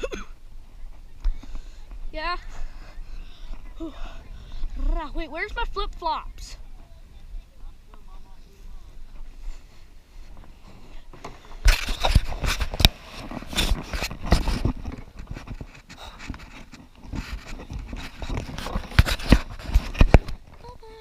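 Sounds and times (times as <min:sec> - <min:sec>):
rustling: 0:07.9 - 0:21.0
sharp knocks and scrapes: 0:10.3 - 0:20.6.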